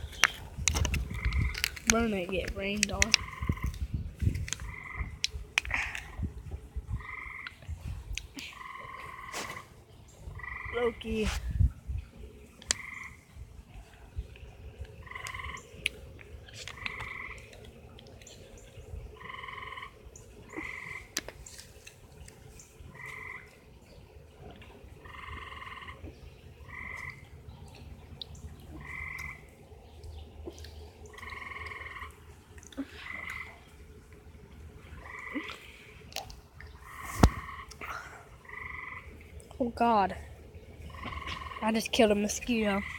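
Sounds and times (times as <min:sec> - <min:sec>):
animal trilled calls: 0:00.0 - 0:03.8, 0:04.5 - 0:06.2, 0:08.4 - 0:11.2, 0:15.0 - 0:15.8, 0:19.2 - 0:21.2, 0:22.9 - 0:23.6, 0:25.0 - 0:27.2, 0:30.4 - 0:32.2, 0:32.8 - 0:33.7, 0:35.0 - 0:35.8, 0:36.7 - 0:39.2, 0:40.8 - 0:42.9.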